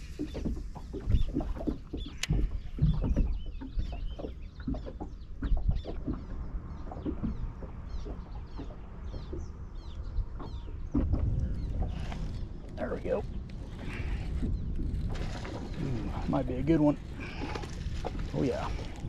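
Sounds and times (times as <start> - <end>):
birds chirping: 0.0 - 19.0
steady low rumble: 5.6 - 19.0.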